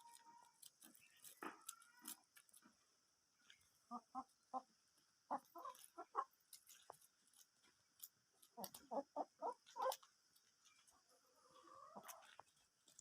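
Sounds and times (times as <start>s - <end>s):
chickens clucking: 3.5s - 7.0s, 8.4s - 12.7s.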